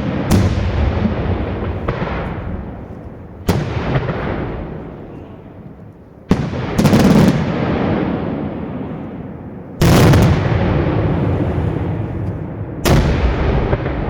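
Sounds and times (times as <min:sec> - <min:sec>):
fireworks bangs: 0:00.0 - 0:14.0
crackling firework reports: 0:06.3 - 0:14.0.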